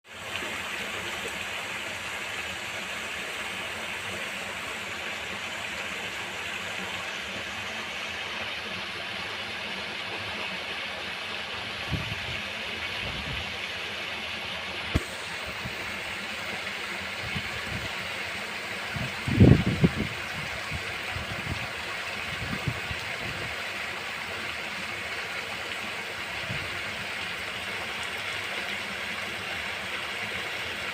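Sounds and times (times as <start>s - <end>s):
steady rain: 14.4s - 30.9s.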